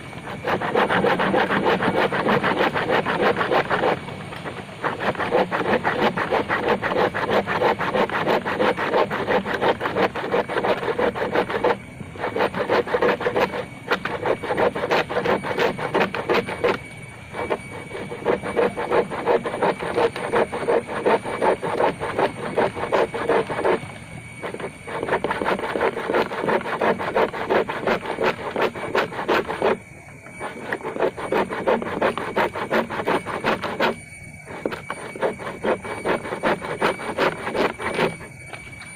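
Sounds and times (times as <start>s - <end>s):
hand saw cutting bamboo: 0.0s - 23.8s, 24.4s - 29.8s, 30.4s - 38.3s.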